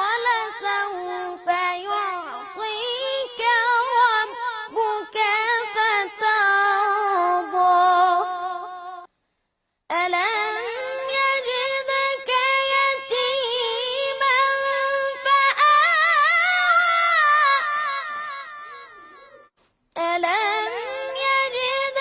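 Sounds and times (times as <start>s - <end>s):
child reciting melodically: 0.0s - 8.4s, 9.9s - 18.6s.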